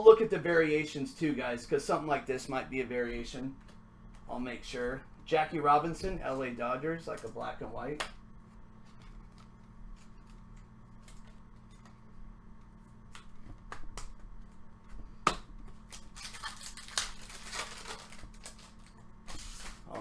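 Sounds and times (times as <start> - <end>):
cards rustling: 15.7 - 20.0.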